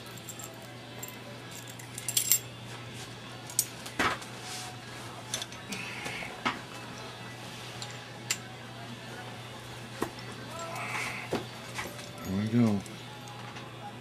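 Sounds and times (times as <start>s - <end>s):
metal tools clinking: 0.1s - 2.5s.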